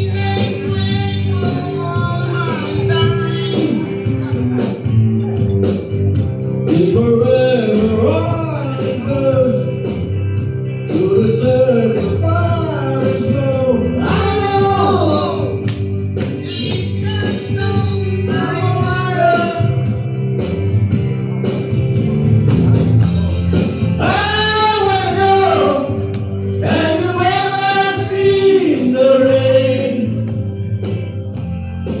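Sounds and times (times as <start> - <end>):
live band guitar music: 0.0 - 32.0
people singing together: 26.6 - 30.2.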